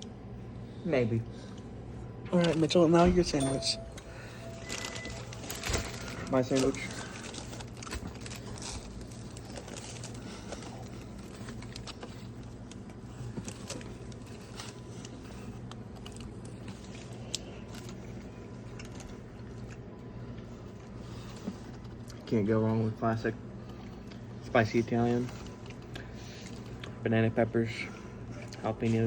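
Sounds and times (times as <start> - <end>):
steady low hum: 0.0 - 29.0
person chewing a sandwich: 4.0 - 22.3, 23.4 - 24.5, 25.2 - 27.0, 28.0 - 28.6
small crackles and clicks: 4.6 - 19.8.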